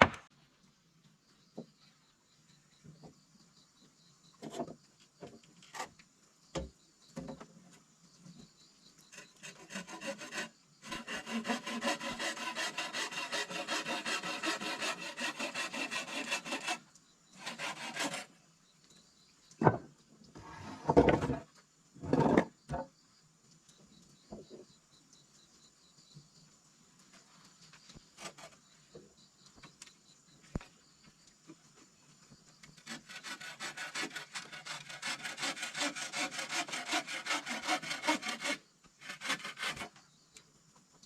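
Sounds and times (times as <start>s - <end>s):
rasping strokes on wood: 9.1s - 16.8s, 17.4s - 18.3s, 32.8s - 40.0s
knocks and thumps: 19.6s - 19.9s.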